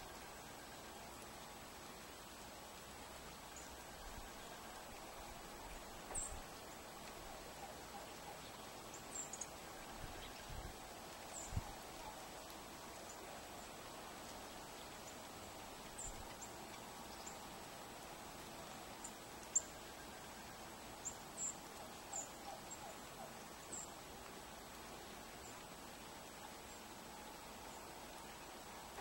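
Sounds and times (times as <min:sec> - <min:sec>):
steady outdoor hiss: 0:00.0 - 0:29.0.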